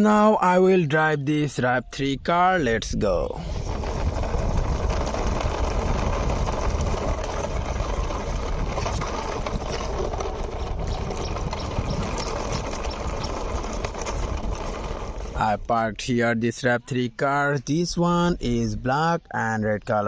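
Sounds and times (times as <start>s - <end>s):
toy car wheels rolling: 2.6s - 16.6s.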